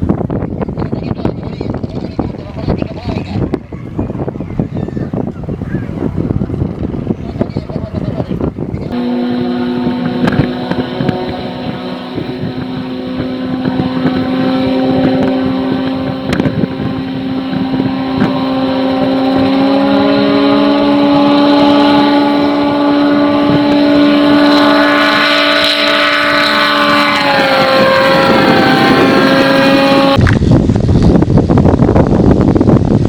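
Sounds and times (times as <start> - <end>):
propeller aircraft engine drone: 8.7 - 33.0.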